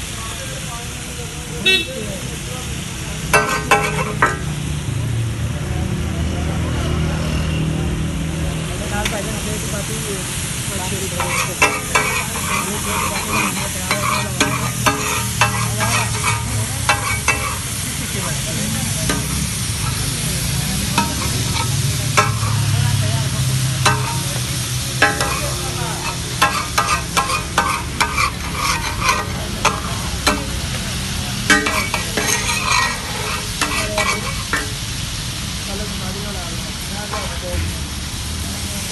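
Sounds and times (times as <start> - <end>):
chicken sizzling on a griddle: 0.0 - 38.9
metallic clicks and scrapes: 25.0 - 30.5, 31.5 - 34.7.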